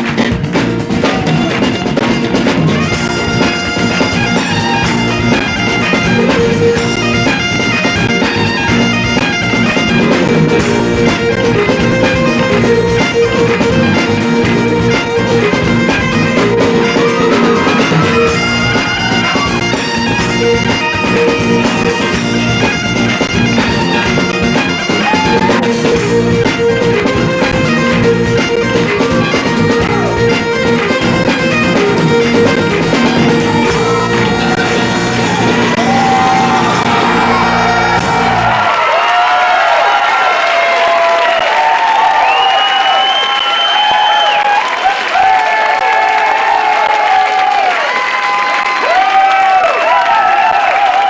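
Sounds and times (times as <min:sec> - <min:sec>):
folk band playing reels: 0:00.0 - 0:38.8
drums: 0:00.0 - 0:51.0
bagpipes with drones: 0:01.8 - 0:38.6.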